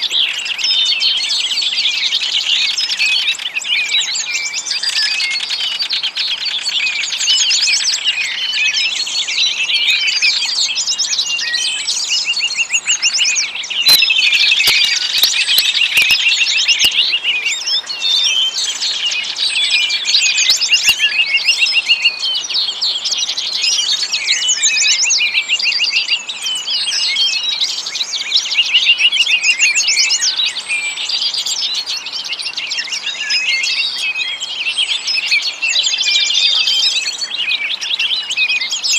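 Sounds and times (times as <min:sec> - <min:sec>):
small birds chirping: 0:00.0 - 0:38.9
sharp clicks: 0:13.9 - 0:16.3.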